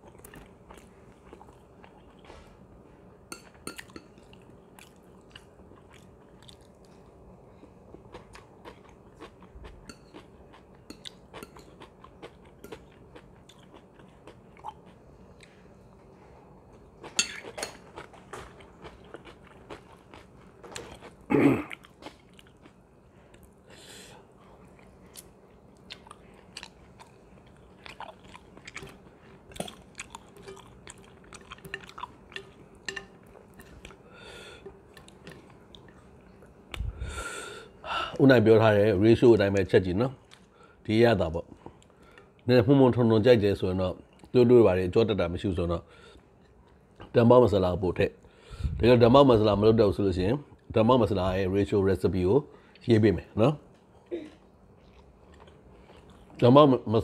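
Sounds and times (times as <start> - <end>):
close chewing and biting: 17.0 - 23.5, 24.8 - 32.5.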